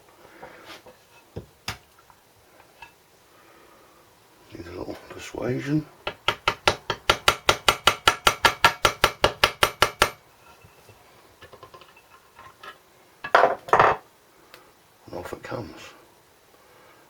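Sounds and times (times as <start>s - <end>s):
rapid hammer taps on metal: 6.1s - 10.2s.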